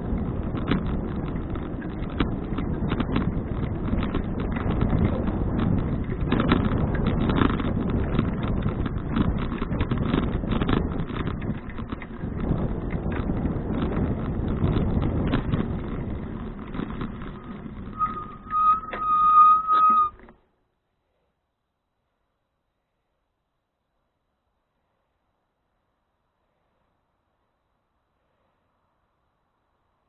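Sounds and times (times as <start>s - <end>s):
bicycle tyre rumble: 0.0s - 20.4s
small rattles and clicks: 0.0s - 20.4s
wind: 0.0s - 30.0s
bicycle brakes squealing: 17.3s - 20.3s.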